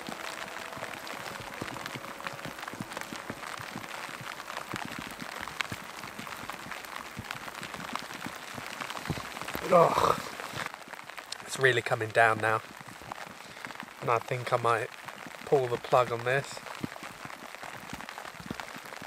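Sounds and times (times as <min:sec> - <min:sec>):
heavy rain: 0:00.0 - 0:19.0.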